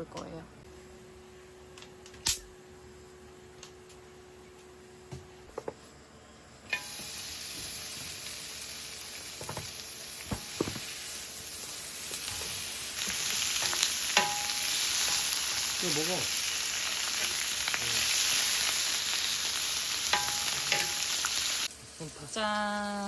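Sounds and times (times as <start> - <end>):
meat sizzling on a pan: 6.7 - 23.0.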